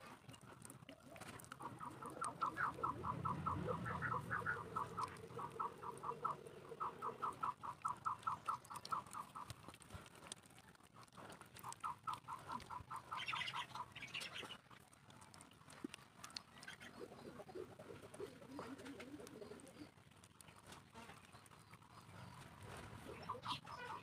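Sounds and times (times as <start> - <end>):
bird calling in fast runs: 1.6 - 9.5.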